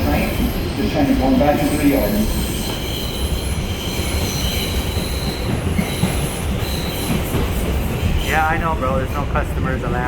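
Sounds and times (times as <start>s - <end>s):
subway car rumbling on rails: 0.0s - 10.0s
high-pitched wheel squeal: 1.6s - 7.2s.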